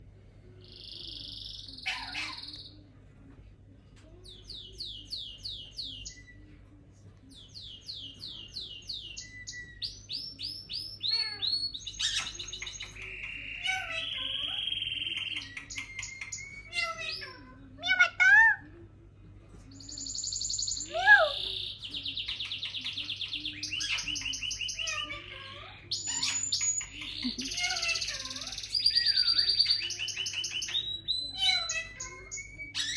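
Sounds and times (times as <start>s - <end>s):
parrot squawks: 1.8s - 2.6s, 16.4s - 18.6s, 31.3s - 32.9s
parrot chirps trills and whistles: 9.0s - 18.6s, 26.0s - 32.9s.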